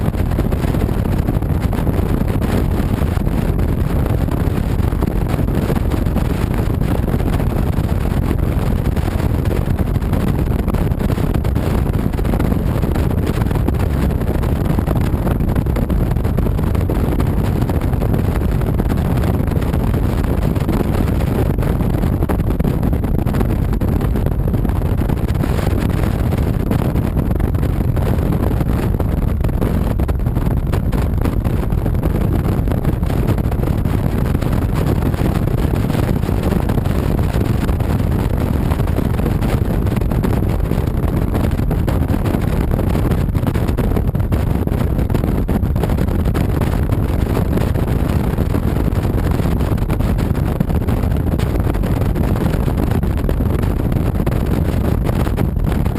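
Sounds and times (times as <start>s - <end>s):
wind rushing on microphone: 0.0s - 55.9s.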